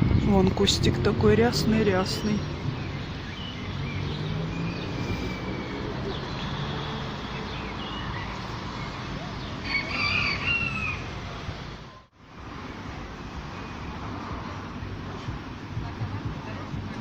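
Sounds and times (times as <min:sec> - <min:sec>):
small birds chirping: 0:00.7 - 0:12.1
peacock wailing call: 0:09.6 - 0:11.2.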